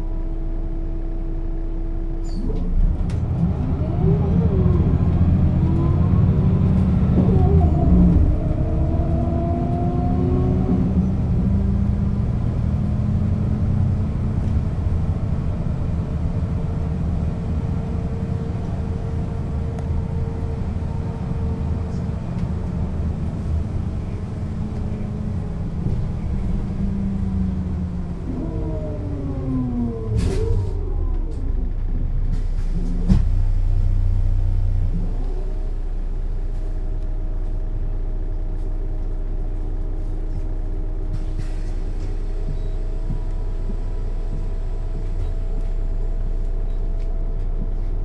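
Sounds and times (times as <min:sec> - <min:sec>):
bus engine accelerating: 0:00.0 - 0:48.0
faint engine whine: 0:00.0 - 0:48.0.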